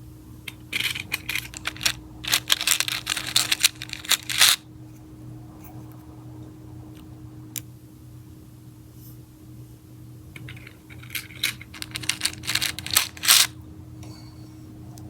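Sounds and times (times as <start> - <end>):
plastic charms clicking and rattling: 0.5 - 4.6, 10.4 - 13.6.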